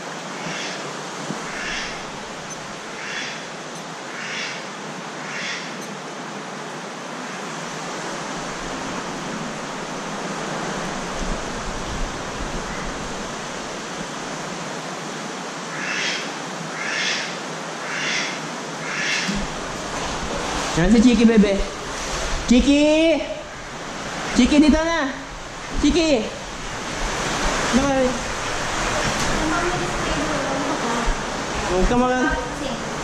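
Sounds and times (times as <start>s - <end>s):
heavy rain and wind: 0.0s - 33.0s.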